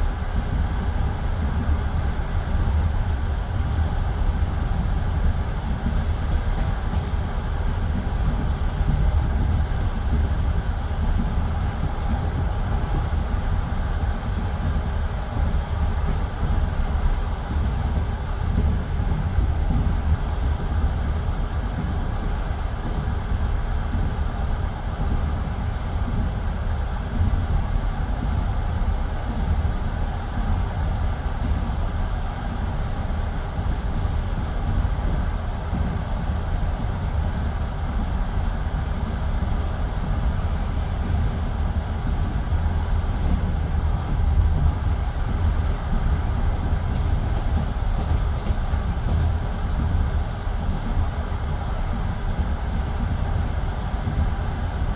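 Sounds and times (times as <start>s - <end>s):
train wheels rumbling on rails: 0.0s - 54.9s.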